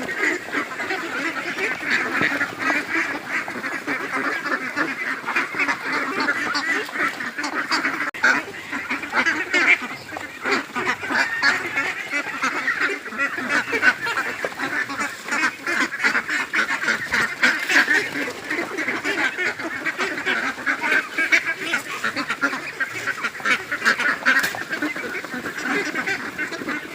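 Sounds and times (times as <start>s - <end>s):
ducks quacking: 0.0s - 26.9s.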